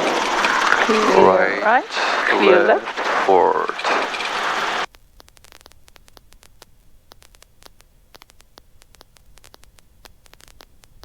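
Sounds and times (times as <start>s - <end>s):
loud radio hiss: 0.0s - 4.9s
crackling static clicks: 0.0s - 11.0s.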